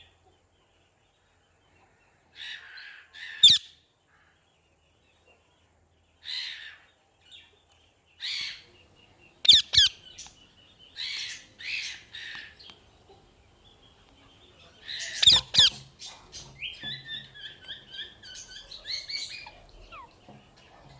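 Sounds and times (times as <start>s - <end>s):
parrot squawking: 3.2s - 3.7s, 9.5s - 10.0s, 15.0s - 15.9s
parrot chattering: 9.5s - 10.0s, 15.0s - 16.0s.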